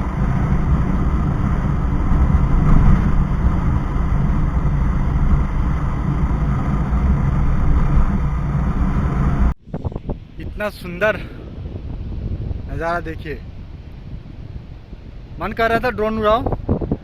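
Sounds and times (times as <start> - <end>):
motorbike engine and road rumble: 0.0 - 10.3
wind on microphone: 0.0 - 17.0.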